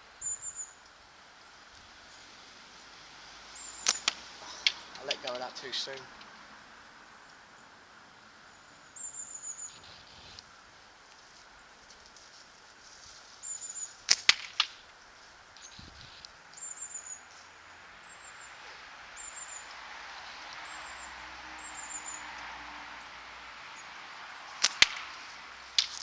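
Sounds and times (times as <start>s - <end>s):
small bird chirping: 0.0s - 6.4s, 8.4s - 10.5s, 13.4s - 22.4s
catapult bands snapping: 3.8s - 5.4s, 14.1s - 14.8s, 24.6s - 26.0s.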